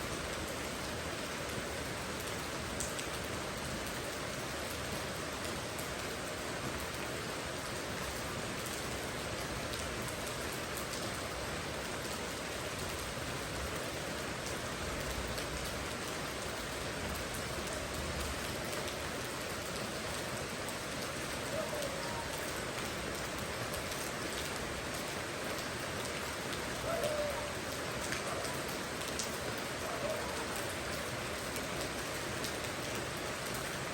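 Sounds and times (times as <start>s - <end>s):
rain pattering: 0.0s - 33.9s.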